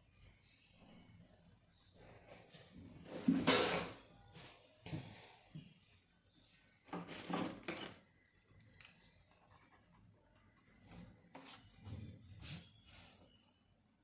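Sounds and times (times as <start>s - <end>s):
strokes across paper: 11.2s - 13.6s.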